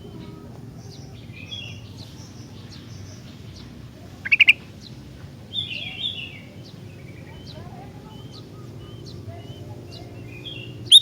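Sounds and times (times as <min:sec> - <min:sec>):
bird chirping: 0:00.0 - 0:11.0
low background noise: 0:00.0 - 0:11.0.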